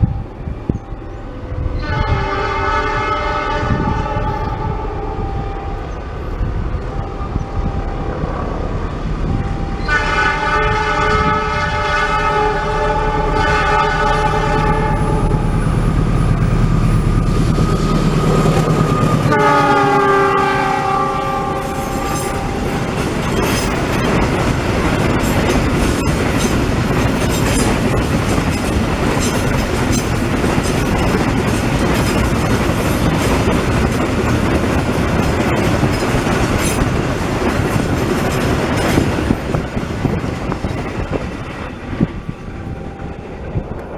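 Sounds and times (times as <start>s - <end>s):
multi-tone train horn blasts: 0.0s - 23.7s, 41.9s - 43.8s
locomotive engine drone: 0.0s - 43.9s
wagons clattering over rail joints: 21.7s - 41.4s.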